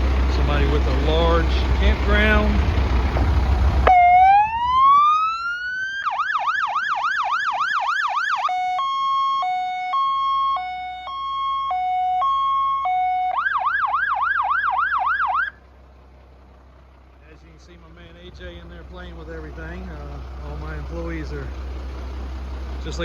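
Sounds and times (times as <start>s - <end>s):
fire truck siren: 2.8s - 15.6s.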